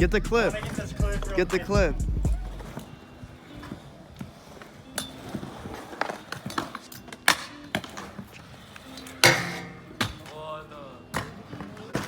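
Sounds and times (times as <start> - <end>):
hard wheels rolling on concrete: 0.1 - 12.0
skateboard trick clacks: 3.5 - 10.4.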